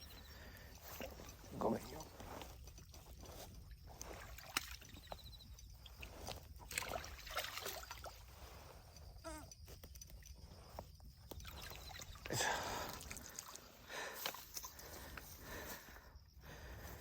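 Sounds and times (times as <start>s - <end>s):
water splashing: 6.6s - 8.3s, 11.4s - 13.8s.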